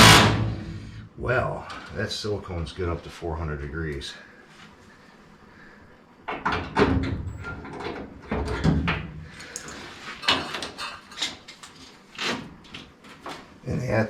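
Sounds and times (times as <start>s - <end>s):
metal parts scraping and clunking: 9.6s - 12.5s.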